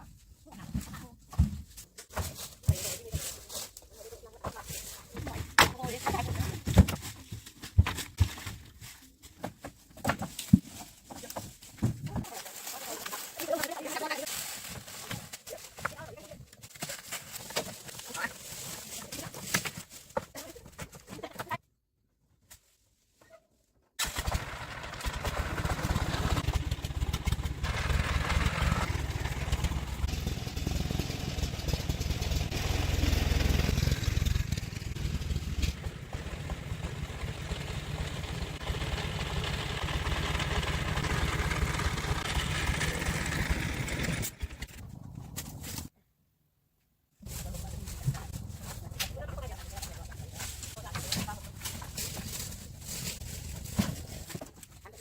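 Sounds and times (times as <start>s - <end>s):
vehicle engine rumbling: 24.2s - 45.9s, 47.2s - 54.4s.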